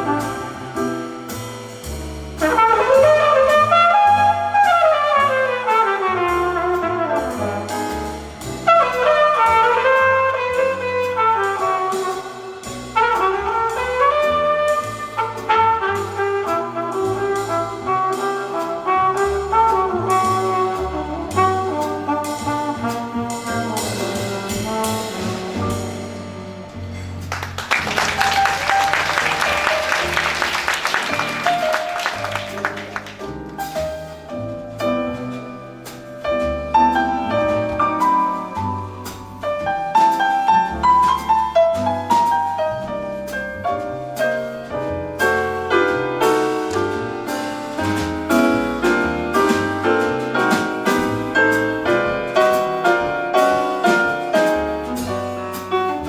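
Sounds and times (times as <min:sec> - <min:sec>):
jazz band playing: 0:00.0 - 0:56.0
audience applauding: 0:27.3 - 0:33.3.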